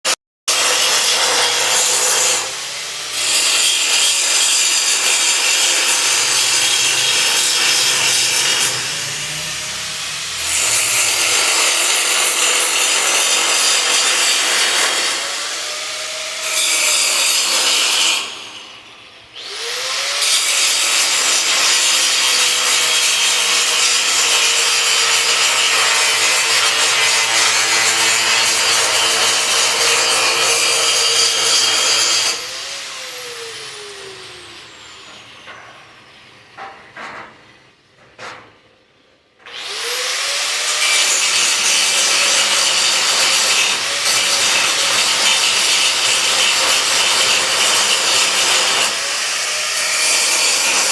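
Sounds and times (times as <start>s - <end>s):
power tool grinding metal: 0.5s - 36.2s, 39.4s - 50.9s
motor whining up to speed: 7.9s - 11.3s.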